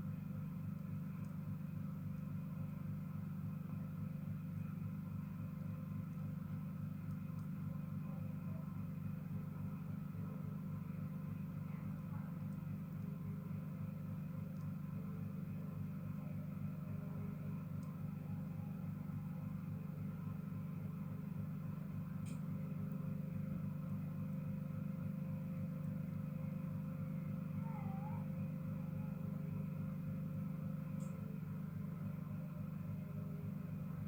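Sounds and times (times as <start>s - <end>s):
faint ticks: 31.0s - 31.2s.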